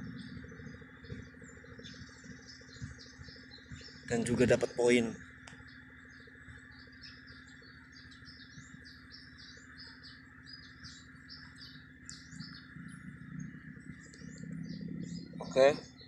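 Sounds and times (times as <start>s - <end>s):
insect drone: 0.0s - 16.0s
small birds chirping: 0.0s - 16.0s.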